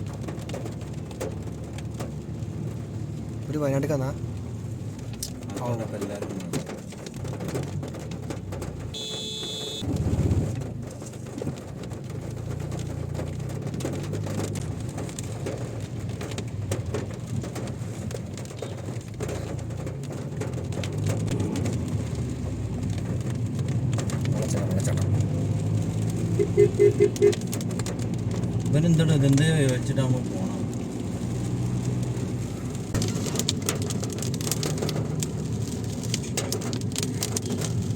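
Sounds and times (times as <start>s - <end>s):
vehicle engine drone: 6.2s - 37.9s
high beep: 9.0s - 9.8s.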